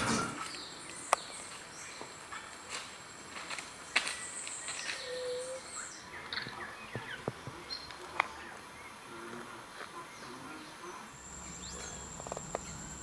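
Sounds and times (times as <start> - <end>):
high insect tone: 11.1 - 13.0.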